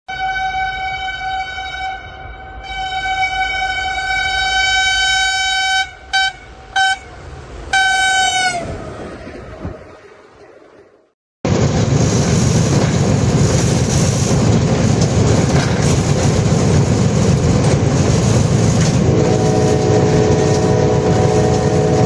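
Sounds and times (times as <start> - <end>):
locomotive horn blasts: 0.1 - 8.9, 19.0 - 22.0
train rumble: 0.1 - 22.0.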